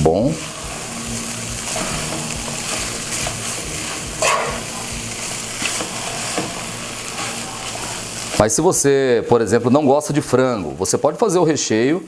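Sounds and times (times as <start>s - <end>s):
chicken sizzling in a pan: 0.0s - 10.3s
spoon stirring and scraping pan: 0.3s - 8.5s.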